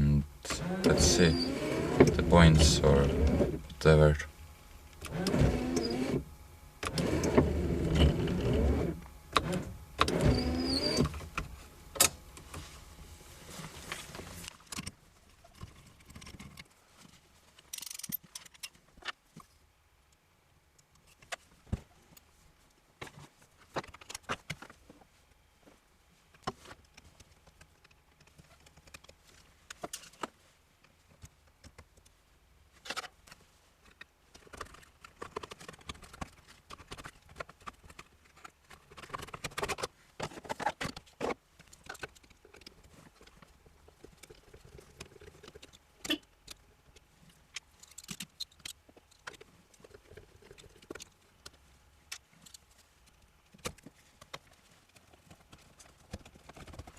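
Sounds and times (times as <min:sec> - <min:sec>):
small electric motor whirring: 0:00.5 - 0:03.7, 0:05.0 - 0:11.2.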